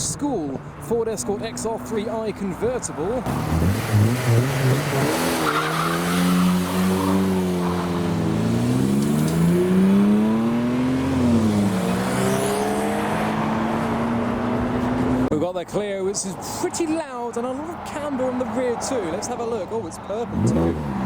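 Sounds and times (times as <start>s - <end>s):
car engine accelerating: 3.1s - 15.3s, 20.3s - 21.0s.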